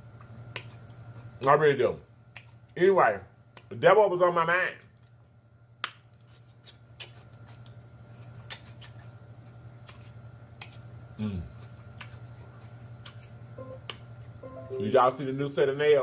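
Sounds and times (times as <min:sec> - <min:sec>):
steady low hum: 0:00.0 - 0:16.0
crunching raw vegetable: 0:05.8 - 0:10.9
person humming mm: 0:11.2 - 0:11.5.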